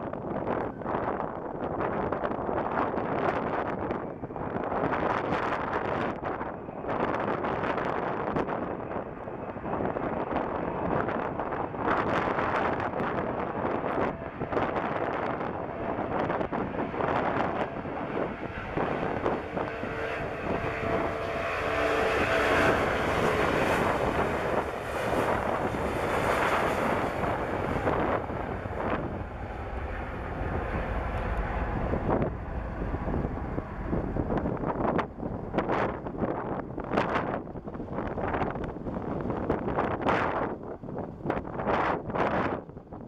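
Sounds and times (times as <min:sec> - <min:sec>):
steady whining tones: 0:00.0 - 0:42.7
jet engines roaring at take-off: 0:00.0 - 0:43.0
wind buffeting microphone: 0:00.0 - 0:43.0.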